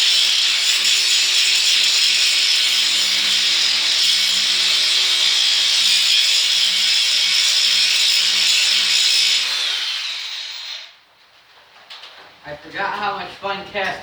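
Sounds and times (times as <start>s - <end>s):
angle grinder grinding metal: 0.0s - 11.0s.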